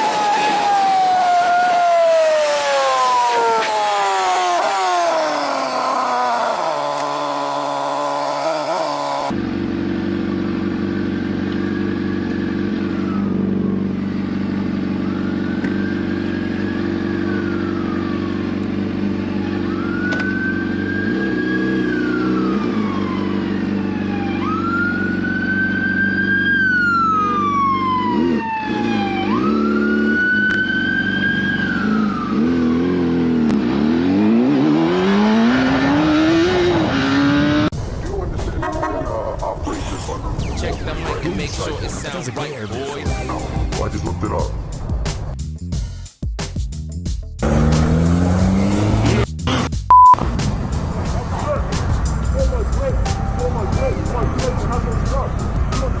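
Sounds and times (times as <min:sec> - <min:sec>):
police siren wailing: 0:00.0 - 0:09.4, 0:11.4 - 0:13.9, 0:14.8 - 0:33.4, 0:34.6 - 0:43.2
motorcycle engine revving: 0:00.0 - 0:37.9, 0:47.4 - 0:56.0.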